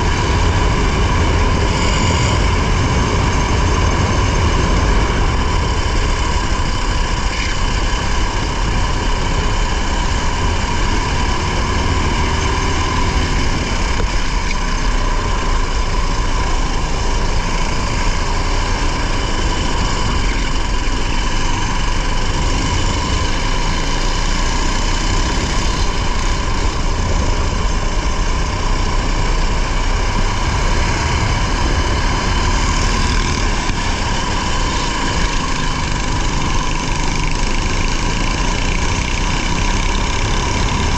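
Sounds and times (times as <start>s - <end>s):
racing car engine running hard: 0.0s - 40.9s
wind and road noise: 0.0s - 40.9s.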